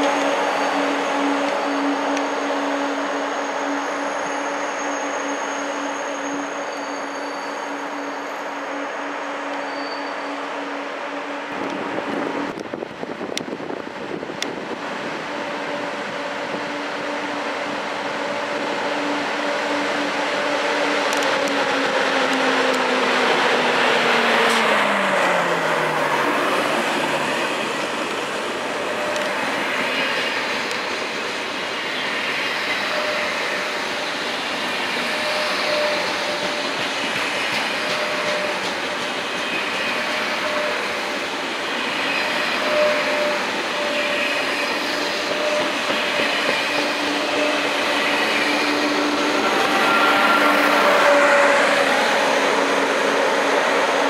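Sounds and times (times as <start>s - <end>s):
train hum gliding down: 0.0s - 54.0s
train rolling rumble: 11.2s - 54.0s.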